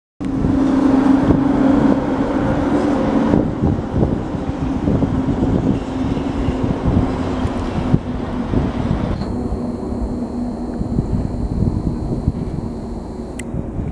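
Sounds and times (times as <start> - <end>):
electric locomotive hum: 0.2 - 13.9
train wheels rumbling on rails: 0.3 - 9.8.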